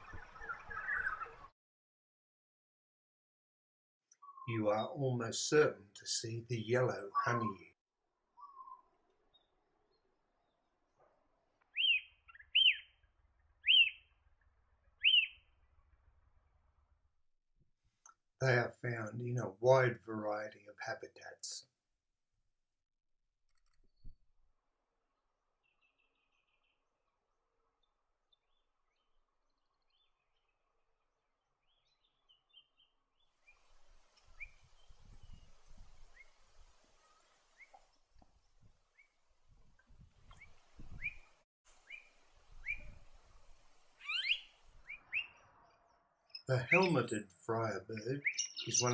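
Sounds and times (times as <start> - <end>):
songbird chirps: 0.0 - 1.5, 4.1 - 17.0, 25.1 - 48.9
honeyeater whistled calls: 8.4 - 8.8, 11.7 - 12.9, 13.6 - 14.0, 15.0 - 15.4, 41.9 - 42.9, 44.0 - 45.4, 48.2 - 48.9.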